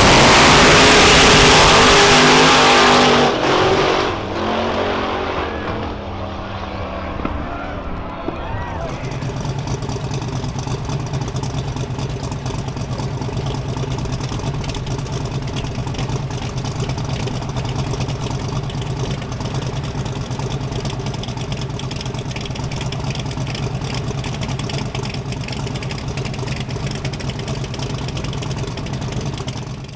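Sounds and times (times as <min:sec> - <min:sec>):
car engine idling: 0:05.3 - 0:29.9.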